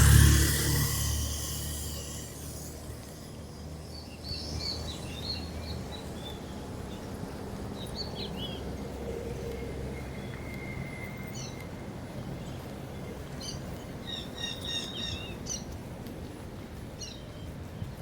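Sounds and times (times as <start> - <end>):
car passing: 0.0 - 3.1
low street rumble: 0.0 - 18.0.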